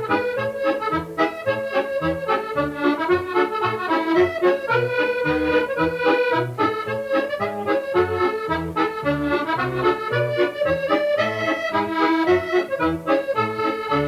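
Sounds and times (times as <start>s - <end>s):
accordion playing lively tune: 0.0s - 14.0s.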